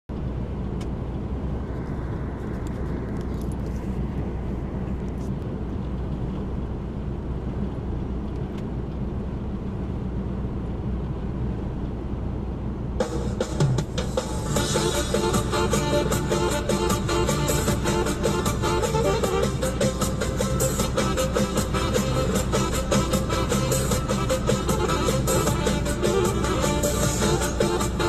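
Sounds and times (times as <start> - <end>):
vehicle engine and tyres cruising: 0.1 - 28.0.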